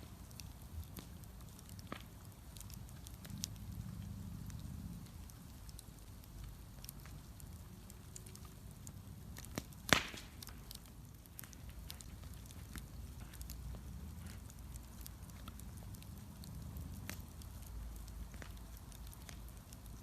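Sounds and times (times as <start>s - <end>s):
bonfire crackling: 0.0s - 20.0s
low steady fire rumble: 0.0s - 20.0s
loud sharp pop: 9.9s - 10.4s.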